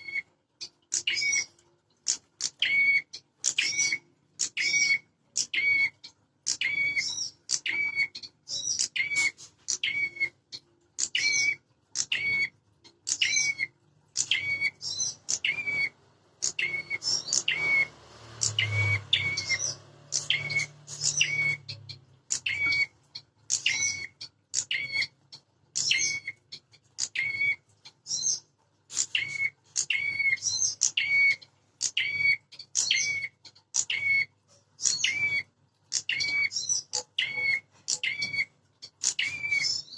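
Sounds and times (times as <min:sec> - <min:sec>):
bird chirping sharply: 0:13.1 - 0:25.1.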